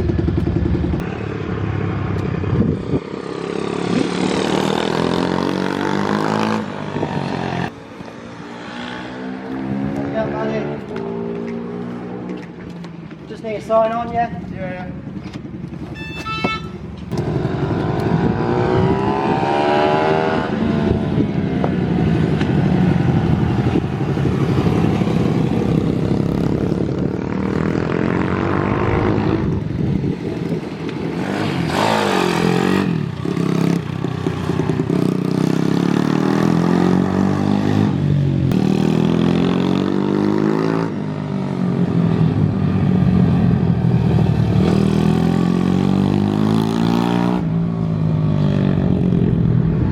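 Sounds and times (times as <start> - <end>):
motorbike engine revving: 15.7 - 41.8, 43.3 - 47.5.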